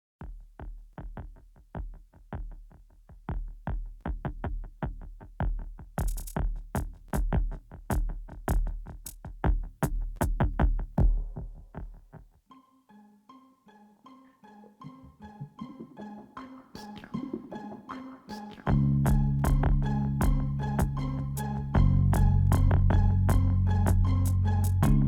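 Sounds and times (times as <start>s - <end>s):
drum machine beat: 0.2s - 12.4s, 18.7s - 25.0s
deep bass: 18.7s - 25.0s.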